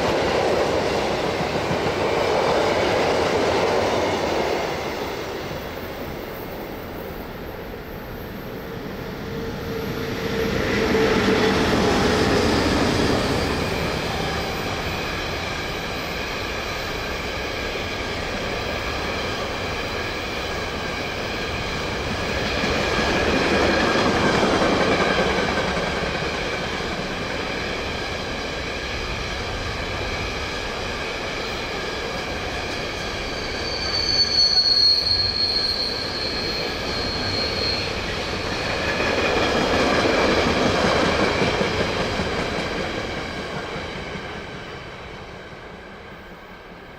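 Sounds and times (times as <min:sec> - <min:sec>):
train wheels rolling on rails: 0:00.0 - 0:46.9
wheel squeal: 0:33.0 - 0:38.9.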